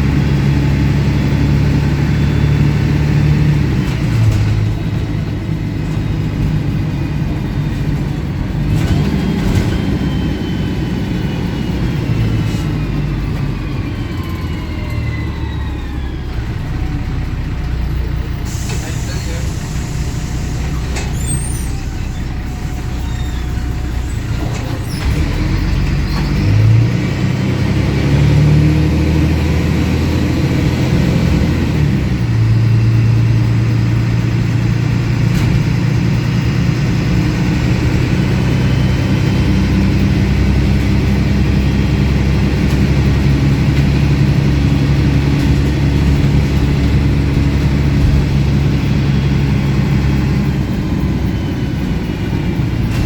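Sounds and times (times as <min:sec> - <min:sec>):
bus diesel engine accelerating: 0:00.0 - 0:53.0.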